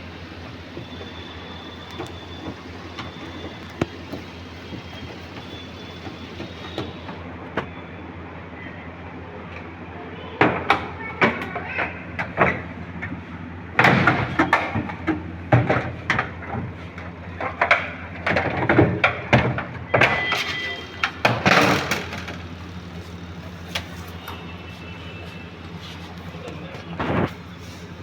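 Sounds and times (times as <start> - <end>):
hard parts knocking and clattering: 13.8 - 22.7.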